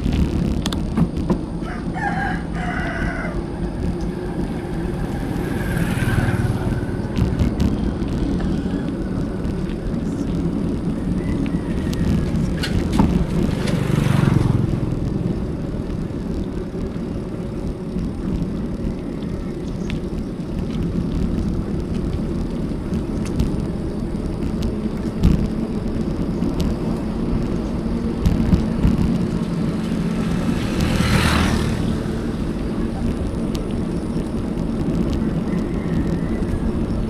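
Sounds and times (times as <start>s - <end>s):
bicycle tyres on road: 0.0s - 37.0s
wind buffeting microphone: 0.0s - 37.0s.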